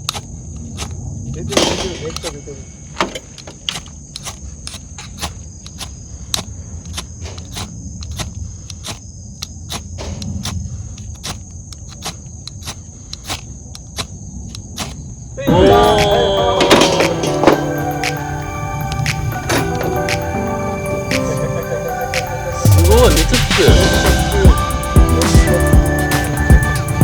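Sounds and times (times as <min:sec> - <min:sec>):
insects chirring: 0:00.0 - 0:27.0
loud music: 0:15.5 - 0:27.0.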